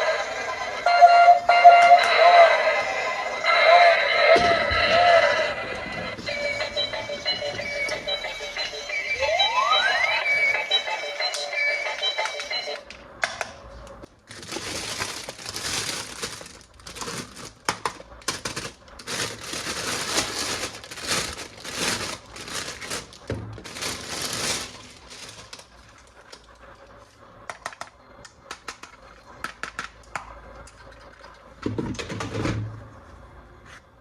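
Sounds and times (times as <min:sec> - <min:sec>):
scattered clicks and taps: 0:11.2 - 0:13.6, 0:27.5 - 0:30.8
packaging crinkling and rustling: 0:14.0 - 0:26.7.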